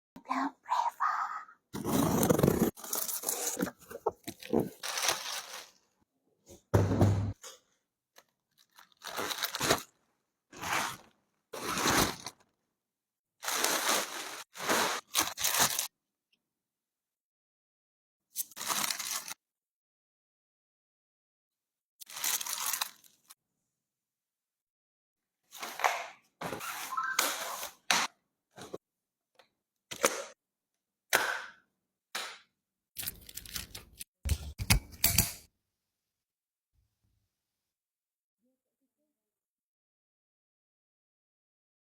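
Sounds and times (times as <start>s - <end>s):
packaging tearing and crinkling: 1.8s - 5.8s, 8.6s - 9.9s, 10.6s - 12.4s, 13.4s - 15.9s, 22.1s - 23.2s.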